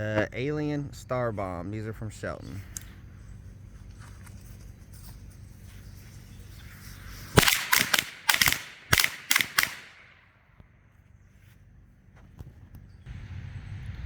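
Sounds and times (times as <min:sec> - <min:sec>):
firecrackers banging: 0:07.1 - 0:10.1.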